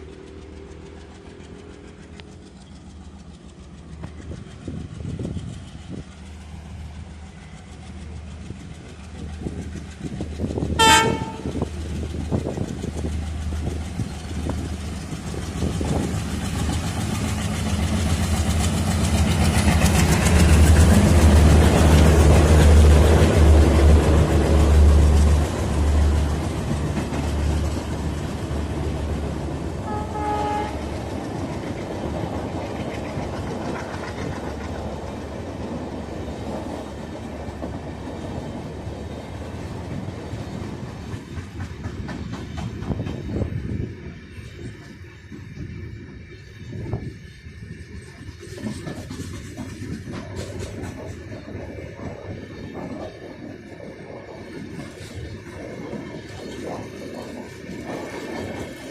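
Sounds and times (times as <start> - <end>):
train passing: 0.0 - 58.9
train horn blast: 10.8 - 11.6, 29.8 - 31.1.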